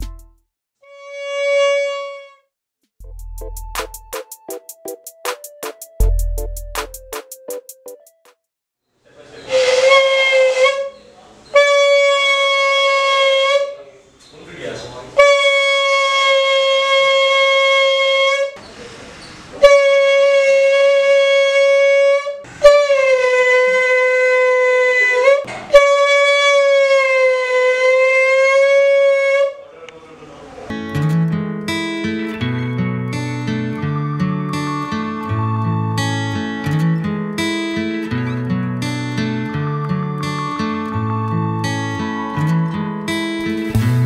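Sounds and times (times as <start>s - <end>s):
buzzy balloon horn note: 0.8s - 2.5s, 9.5s - 13.8s, 15.2s - 18.6s, 19.6s - 29.6s.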